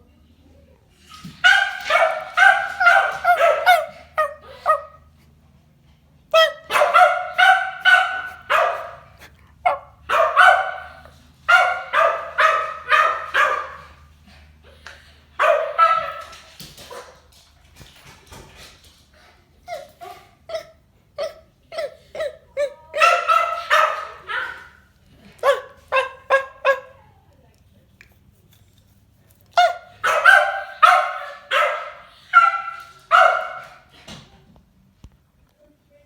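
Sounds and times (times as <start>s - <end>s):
dog barking: 1.3s - 5.1s, 6.3s - 14.1s, 15.4s - 17.2s, 22.7s - 27.0s, 29.6s - 33.9s.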